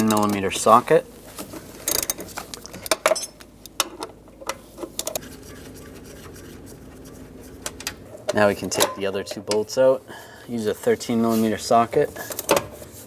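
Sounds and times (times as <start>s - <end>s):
socket wrench clicking: 0.0s - 0.7s, 1.9s - 5.2s, 12.2s - 12.7s.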